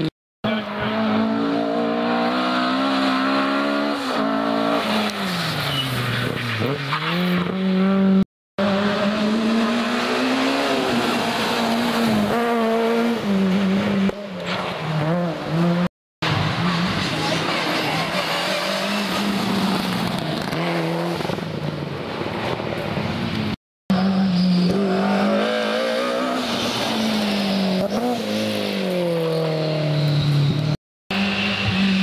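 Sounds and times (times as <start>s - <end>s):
rally car engines revving: 0.0s - 32.0s
tyre squeal: 5.2s - 7.4s.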